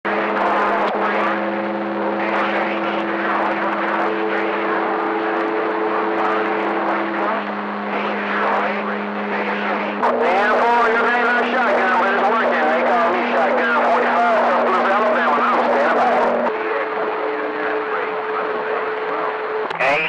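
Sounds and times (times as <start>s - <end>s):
droning heterodyne tones: 0.1s - 20.0s
garbled radio voices: 0.1s - 20.0s
radio static: 0.1s - 20.0s.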